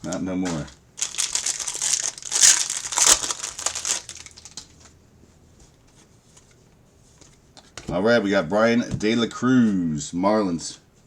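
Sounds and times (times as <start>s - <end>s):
plastic packaging tearing and crinkling: 1.0s - 4.7s.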